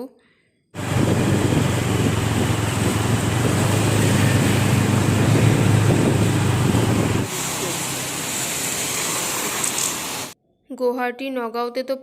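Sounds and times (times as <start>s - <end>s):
low engine hum: 0.8s - 10.4s
road and wind noise: 0.8s - 10.4s.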